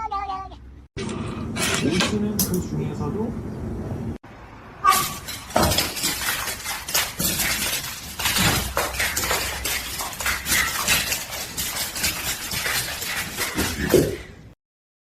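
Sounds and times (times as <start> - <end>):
hard objects clinking: 5.0 - 14.3.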